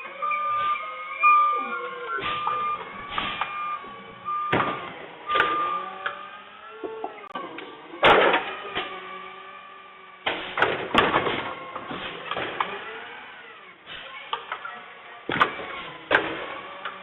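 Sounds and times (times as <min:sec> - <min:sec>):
garbage truck mechanical whine: 0:00.0 - 0:17.0
loud bangs: 0:02.1 - 0:06.0.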